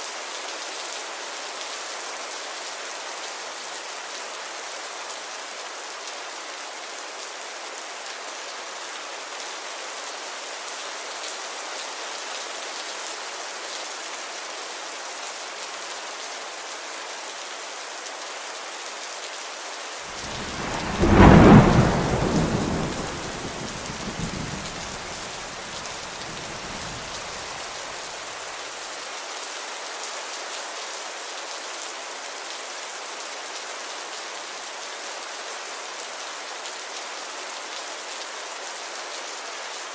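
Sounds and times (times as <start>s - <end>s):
steady rain: 0.0s - 39.9s
thunder clap rumbling: 20.2s - 27.7s.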